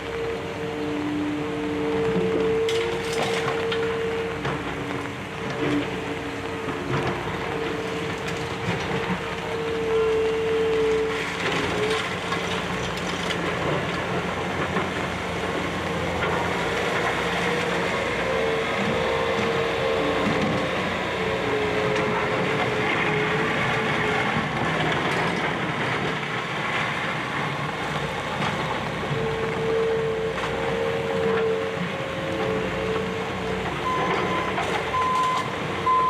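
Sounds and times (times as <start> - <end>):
excavator engine drone: 0.0 - 36.0.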